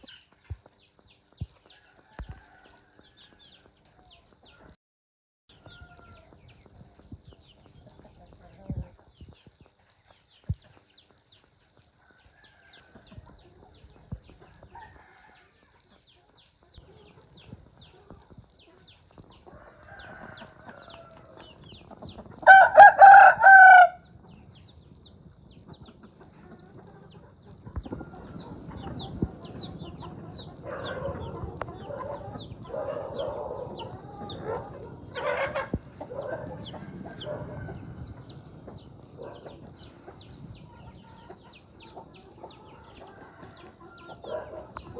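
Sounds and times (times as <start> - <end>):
hens clucking: 15.8 - 24.6, 25.3 - 44.9
rooster crowing: 19.6 - 21.5, 22.4 - 24.1, 30.6 - 38.0.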